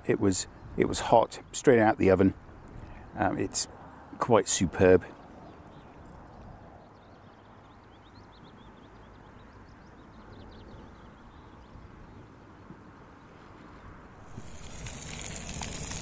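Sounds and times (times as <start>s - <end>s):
camping stove hissing: 14.2s - 16.0s.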